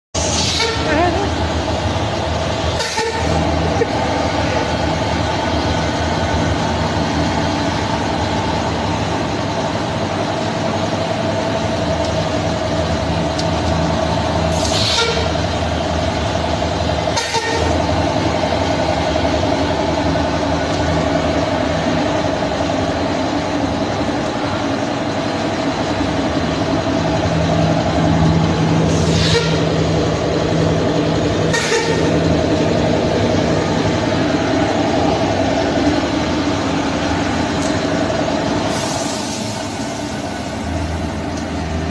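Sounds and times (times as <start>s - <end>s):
short air hisses: 0.2s - 0.8s, 14.5s - 15.2s, 38.7s - 40.2s.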